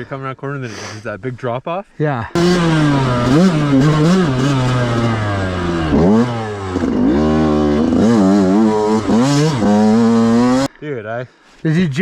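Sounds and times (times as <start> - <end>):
dirt bike engine revving: 2.4 - 10.7.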